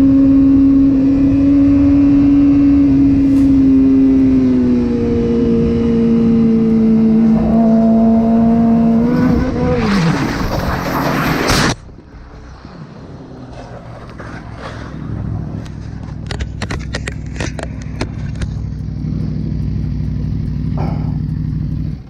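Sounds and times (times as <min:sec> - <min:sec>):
motorcycle engine running: 0:00.0 - 0:09.2, 0:15.0 - 0:22.0
sharp clicks and knocks: 0:15.6 - 0:22.0.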